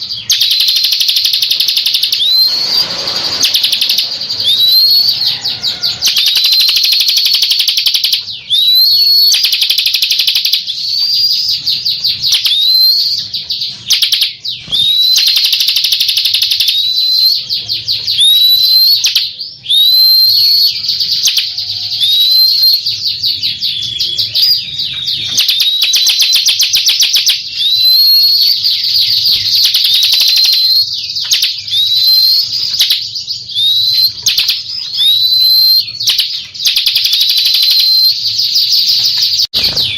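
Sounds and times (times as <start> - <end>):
bird singing high trills: 0.0 - 39.9.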